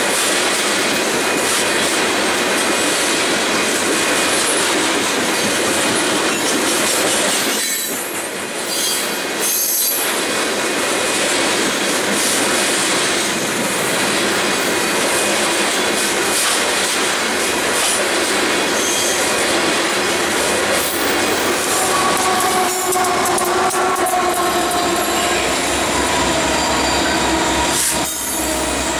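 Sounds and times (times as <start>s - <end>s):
train wheels rolling on rail: 0.0s - 28.9s
wheel squeals: 18.8s - 19.3s, 22.0s - 28.9s
steady tones: 19.6s - 28.9s.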